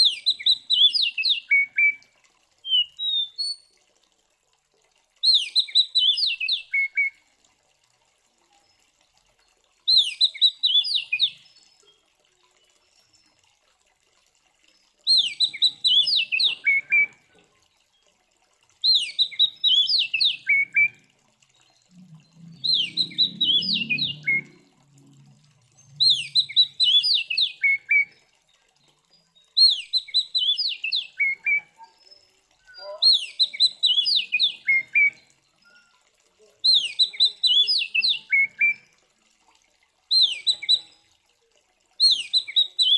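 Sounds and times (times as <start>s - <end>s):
magpie-robin singing whistled notes: 2.7s - 3.6s, 5.2s - 7.1s, 9.9s - 12.0s, 15.1s - 17.1s, 18.8s - 21.0s, 22.5s - 24.6s, 26.0s - 28.1s, 29.6s - 36.0s, 36.6s - 38.8s, 40.1s - 41.0s, 42.0s - 42.9s.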